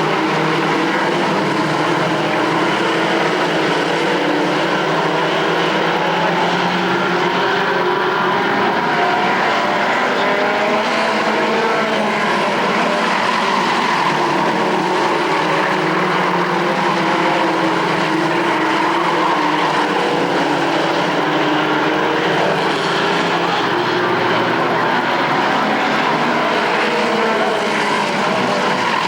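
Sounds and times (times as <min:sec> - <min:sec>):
racing truck engines droning: 0:00.0 - 0:29.0.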